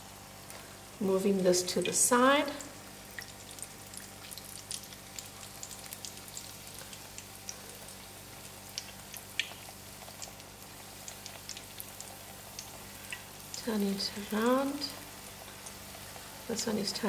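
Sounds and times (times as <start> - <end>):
dough sizzling in oil: 0.0 - 17.0.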